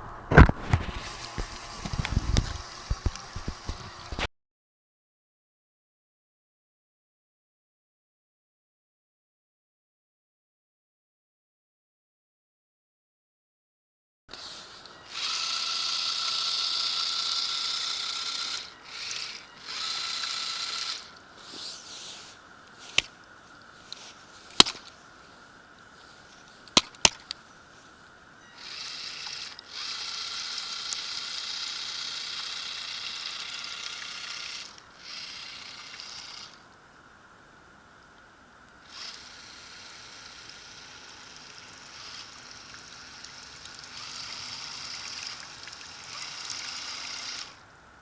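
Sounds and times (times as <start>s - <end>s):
small electric motors whining: 0.0s - 4.3s, 14.3s - 48.0s
sharp clicks: 22.6s - 23.2s, 24.5s - 25.0s.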